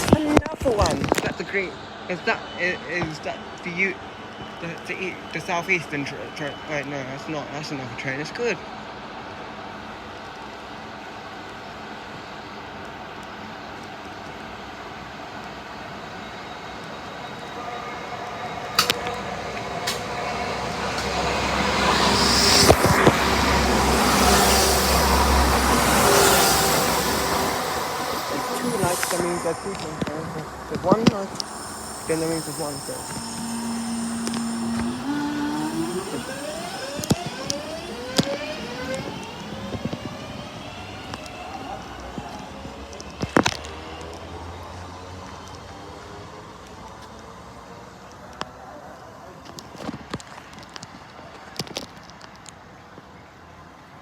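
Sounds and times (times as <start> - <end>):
train running noise: 0.0 - 9.1, 10.4 - 43.2
faint whine: 15.8 - 42.5.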